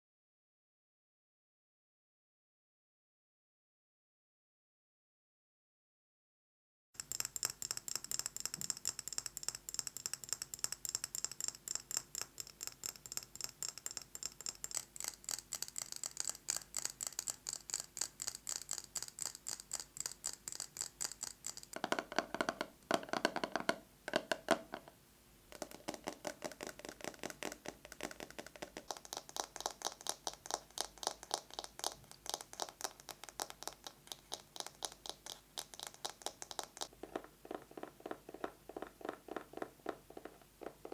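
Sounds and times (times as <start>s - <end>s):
fingernails tapping on objects: 7.0s - 24.9s.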